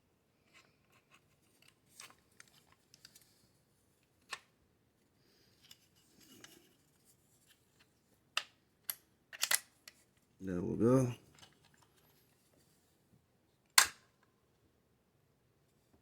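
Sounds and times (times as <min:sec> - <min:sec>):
rifle parts clicking and scraping: 0:05.6 - 0:06.8, 0:08.9 - 0:10.1.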